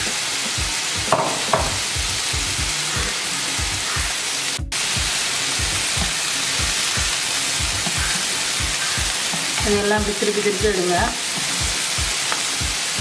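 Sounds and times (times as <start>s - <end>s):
background music with low beat: 0.0s - 13.0s
chicken sizzling on a griddle: 0.0s - 13.0s.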